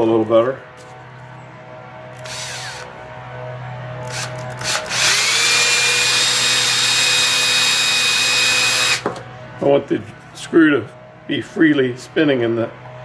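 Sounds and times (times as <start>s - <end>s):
power drill whining: 2.1s - 2.9s, 4.0s - 9.1s.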